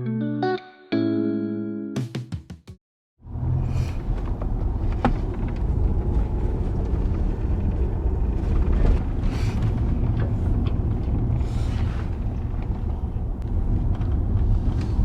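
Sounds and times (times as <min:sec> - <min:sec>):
steady low rumble: 0:03.3 - 0:15.0.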